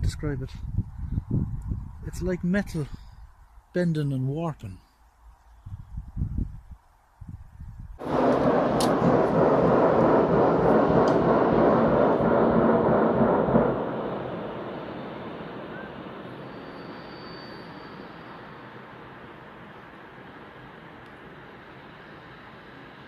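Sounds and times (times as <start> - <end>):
loud rough rumbling from sky: 7.9 - 16.8.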